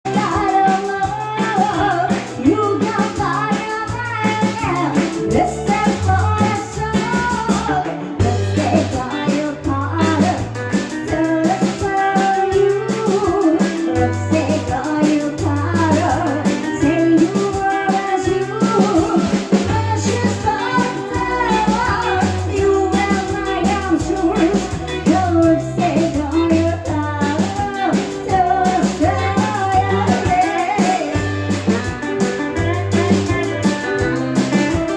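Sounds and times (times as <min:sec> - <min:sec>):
bass line: 0:00.0 - 0:34.9
drums: 0:00.0 - 0:34.9
guitar: 0:00.0 - 0:34.9
person singing lead vocals: 0:00.0 - 0:34.9.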